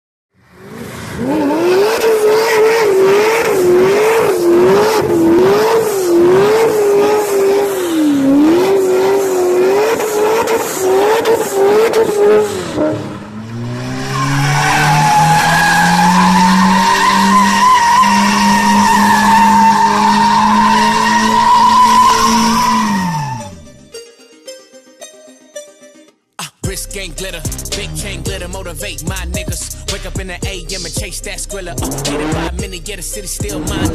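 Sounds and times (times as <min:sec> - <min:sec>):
car engine revving high: 0:00.5 - 0:23.8, 0:30.8 - 0:33.9
tyres screeching: 0:02.0 - 0:23.9.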